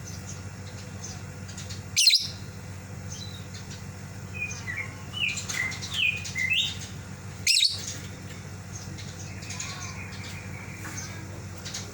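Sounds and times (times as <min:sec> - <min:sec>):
steady low hum: 0:00.0 - 0:11.9
shrill bird call: 0:02.0 - 0:02.4, 0:07.4 - 0:07.9, 0:09.2 - 0:11.2
lovebird chirping: 0:07.4 - 0:07.9.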